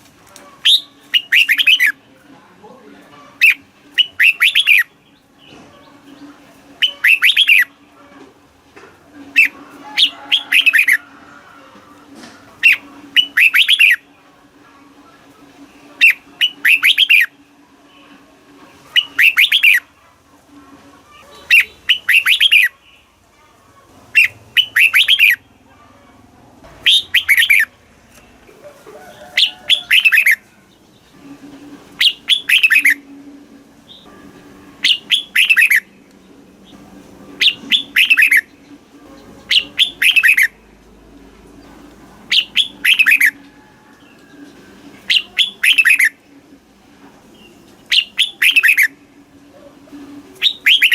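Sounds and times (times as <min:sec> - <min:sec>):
bulbul whistled song: 0:00.6 - 0:02.0, 0:03.4 - 0:05.2, 0:06.7 - 0:07.8, 0:09.3 - 0:11.0, 0:12.6 - 0:14.2, 0:16.0 - 0:17.4, 0:18.9 - 0:19.9, 0:21.4 - 0:22.8, 0:24.2 - 0:25.5, 0:26.8 - 0:27.7, 0:29.2 - 0:30.5, 0:32.0 - 0:33.2, 0:33.8 - 0:35.9, 0:37.4 - 0:38.6, 0:39.4 - 0:40.6, 0:42.3 - 0:46.3, 0:47.4 - 0:49.1, 0:50.1 - 0:50.9.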